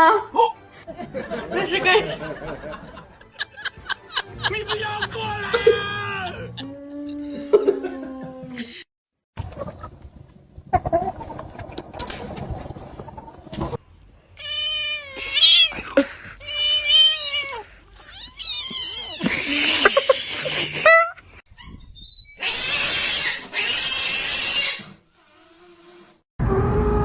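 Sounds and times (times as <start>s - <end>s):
cat yowling: 16.4s - 19.2s.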